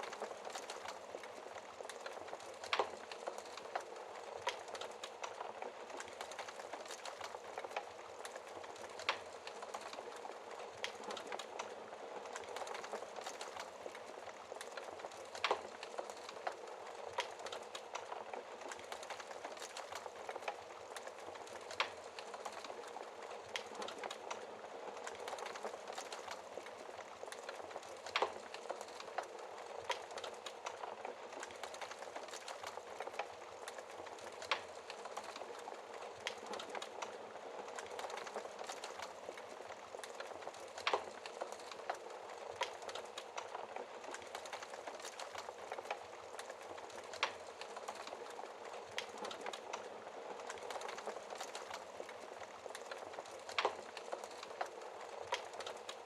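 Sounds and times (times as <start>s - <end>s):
fire popping: 0.0s - 56.0s
wood fire crackling: 0.0s - 56.0s.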